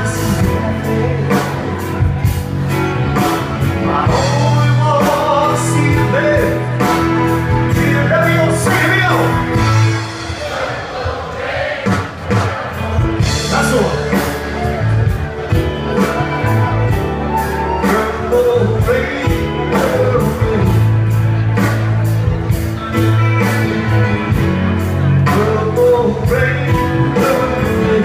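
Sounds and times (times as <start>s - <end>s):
person singing: 0.0s - 2.1s, 3.2s - 10.0s, 15.6s - 21.2s, 25.1s - 28.0s
electric guitar: 0.0s - 10.3s, 12.8s - 28.0s
bass guitar: 0.0s - 10.5s, 11.9s - 28.0s
steady drum beat: 0.0s - 28.0s.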